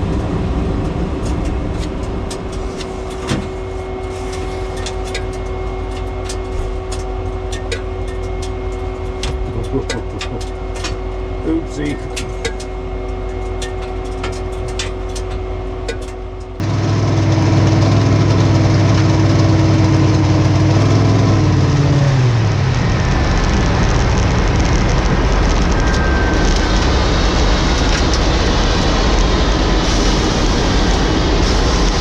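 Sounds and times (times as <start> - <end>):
race car engine: 16.6 - 32.0
loud rushing noise: 21.4 - 32.0.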